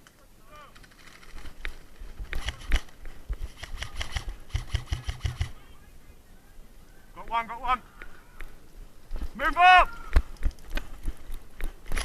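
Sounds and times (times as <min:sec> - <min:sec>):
airsoft gun firing: 0:02.3 - 0:02.9, 0:03.5 - 0:05.6.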